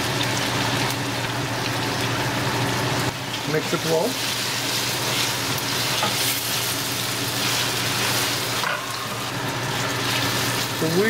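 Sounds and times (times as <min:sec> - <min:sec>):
vegetables sizzling in oil: 0:00.0 - 0:11.0
spatula scraping and stirring: 0:04.1 - 0:09.0.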